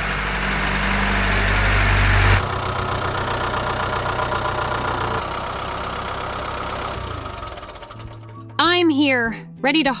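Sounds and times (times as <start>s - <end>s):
tractor engine running: 0.0s - 9.2s.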